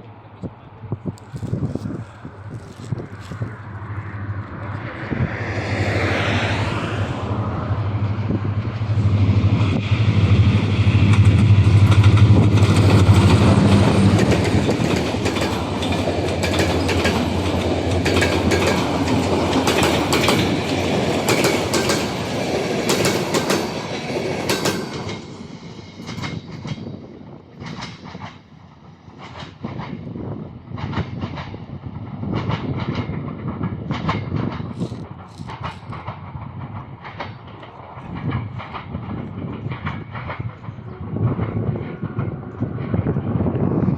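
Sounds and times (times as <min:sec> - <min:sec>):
locomotive low hum: 0:00.0 - 0:26.2
train wheels clicking on rail joints: 0:00.4 - 0:06.5, 0:08.1 - 0:43.3.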